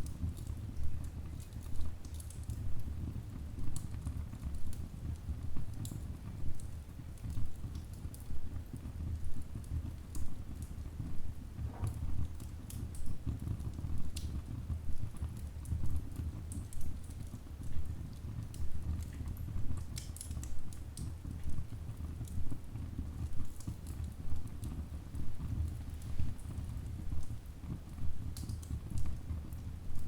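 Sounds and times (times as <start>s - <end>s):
low rumble of flames: 0.0s - 30.0s.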